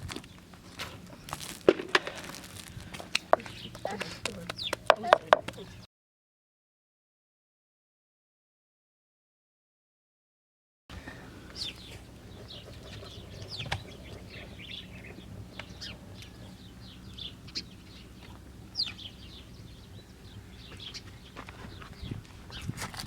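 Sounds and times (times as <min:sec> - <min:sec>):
small birds chirping: 0:00.0 - 0:05.9, 0:10.9 - 0:23.0
faint low hum: 0:10.9 - 0:22.8.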